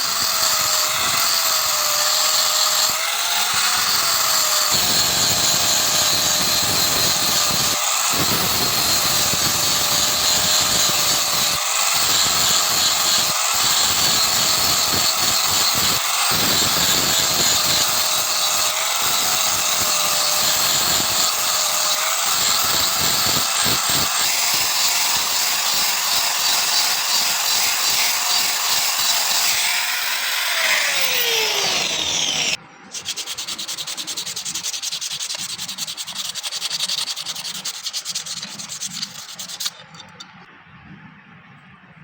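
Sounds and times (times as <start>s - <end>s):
electric power tool grinding: 0.0s - 40.4s
rapid rasping of sanding: 32.9s - 39.8s.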